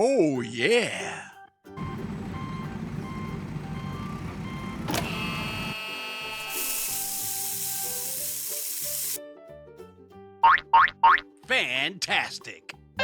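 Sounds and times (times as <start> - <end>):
truck engine rumble: 1.8 - 5.7
reversing beep: 1.8 - 6.4
loud hiss: 6.4 - 9.2.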